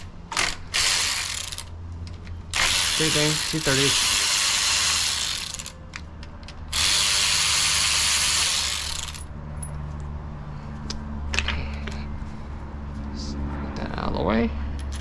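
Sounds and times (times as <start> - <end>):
pneumatic ratchet hissing: 2.6 - 5.7.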